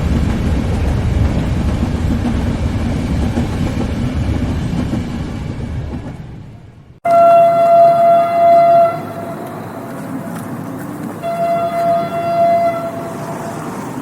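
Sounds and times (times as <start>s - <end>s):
rumble of passing train: 0.0s - 14.0s
train horn blasts: 7.0s - 10.4s, 11.2s - 13.8s.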